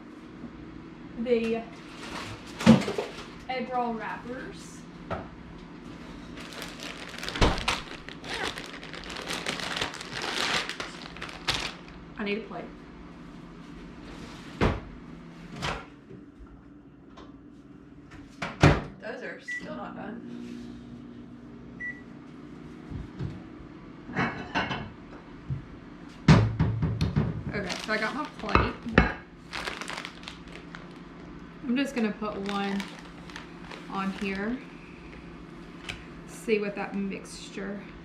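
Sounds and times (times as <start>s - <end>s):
microwave oven humming: 0.0s - 38.0s
packaging crinkling and rustling: 6.1s - 12.0s, 27.5s - 31.4s, 32.1s - 34.6s, 35.6s - 36.1s.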